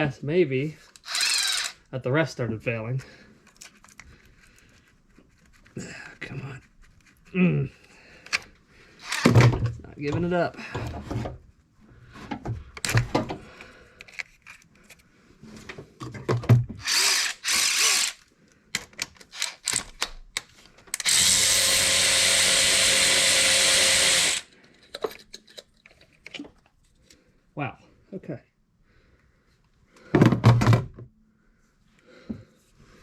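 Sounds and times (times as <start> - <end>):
power drill running: 1.0 - 1.8, 9.0 - 9.4, 16.8 - 18.2, 21.0 - 24.5.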